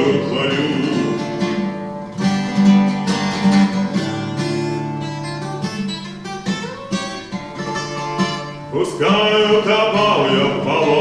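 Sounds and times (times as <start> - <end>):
acoustic guitar playing: 0.0 - 11.0.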